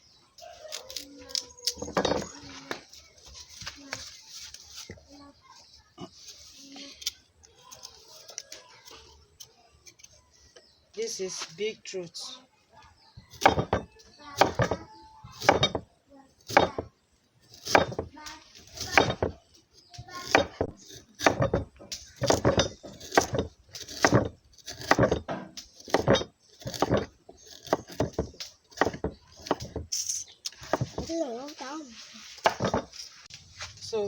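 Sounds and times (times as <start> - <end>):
knife chopping on cutting board: 22.2 - 29.8.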